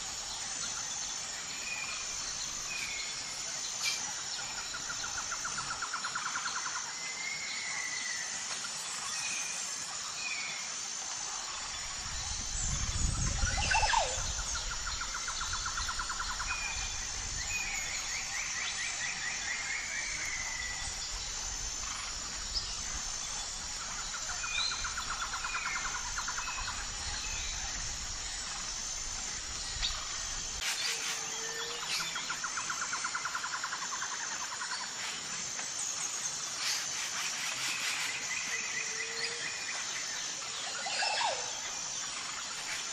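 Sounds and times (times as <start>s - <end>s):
high-pitched pulsing chirping: 11.6s - 34.2s.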